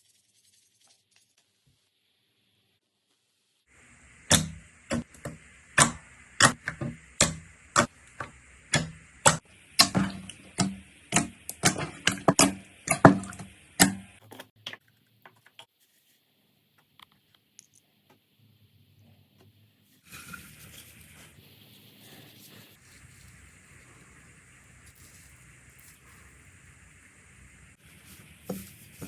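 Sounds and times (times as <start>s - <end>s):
steady hiss: 3.6s - 14.2s, 19.7s - 29.0s.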